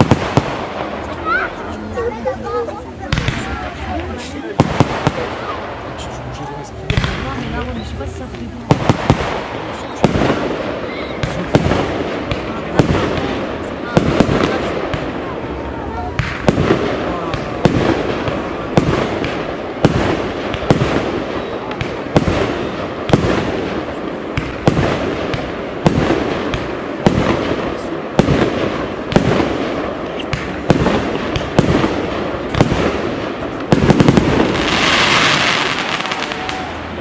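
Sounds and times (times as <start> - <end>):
firework shells bursting with bangs: 0.0 - 1.6, 6.8 - 15.4, 16.1 - 37.0
firework cracks: 0.0 - 37.0
loud hissing crackle: 0.0 - 37.0.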